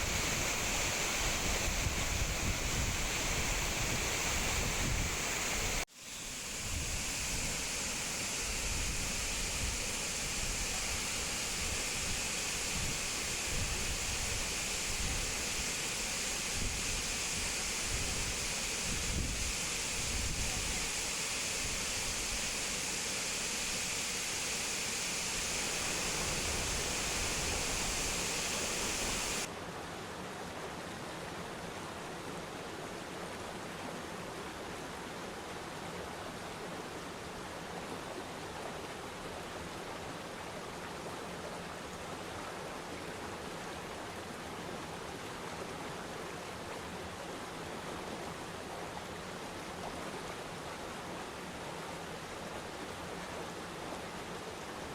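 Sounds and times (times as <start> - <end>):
waterfall water rushing: 0.0 - 29.5.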